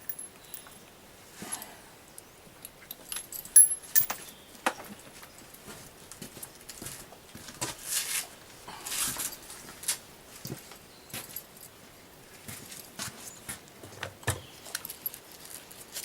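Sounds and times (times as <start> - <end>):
rifle clicks and metal rattles: 0.0 - 0.9, 2.6 - 4.4.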